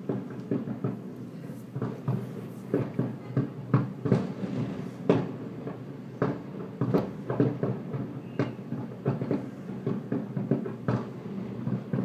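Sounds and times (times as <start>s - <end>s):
firework shells bursting: 6.2s - 12.0s.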